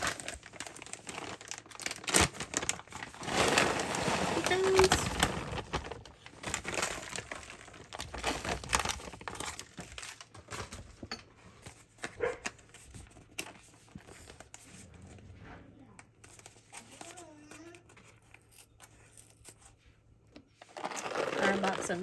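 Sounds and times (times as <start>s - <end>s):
packaging crinkling: 0.0s - 10.9s, 20.5s - 22.0s.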